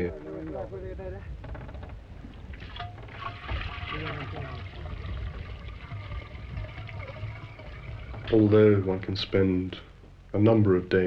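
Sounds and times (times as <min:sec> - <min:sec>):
steady low hum: 0:00.0 - 0:11.0
running water splashing: 0:02.0 - 0:09.6
faint voices talking: 0:03.6 - 0:11.0.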